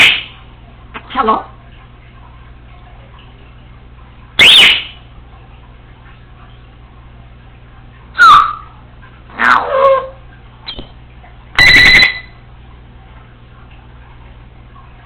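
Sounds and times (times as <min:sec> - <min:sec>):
parrot calling: 0:04.4 - 0:05.0, 0:08.2 - 0:10.9, 0:11.6 - 0:12.4.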